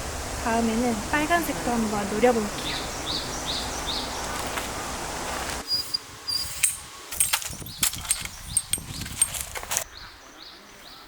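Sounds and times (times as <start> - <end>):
steady rushing hiss: 0.0 - 10.0
birds chirping: 0.4 - 11.0
objects being handled clicking: 6.6 - 9.9.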